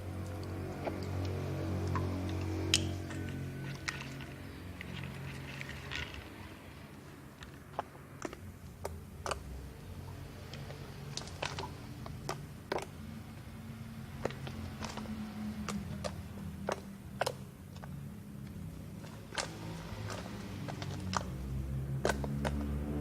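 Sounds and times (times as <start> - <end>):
slime clicking and popping: 0.2 - 4.2.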